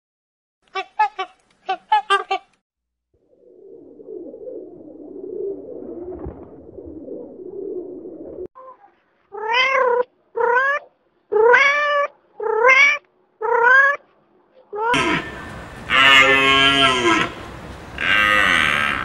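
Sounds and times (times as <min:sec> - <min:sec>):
pigeons cooing: 0:03.3 - 0:08.5, 0:14.9 - 0:19.0.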